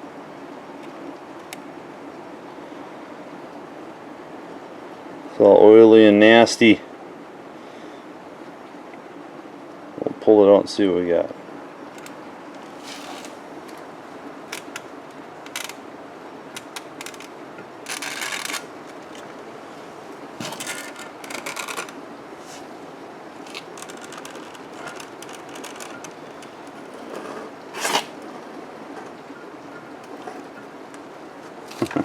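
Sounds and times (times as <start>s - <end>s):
cable scraping and rustling: 11.9s - 13.9s, 14.5s - 15.8s, 16.5s - 22.8s, 23.4s - 28.3s, 31.4s - 32.0s.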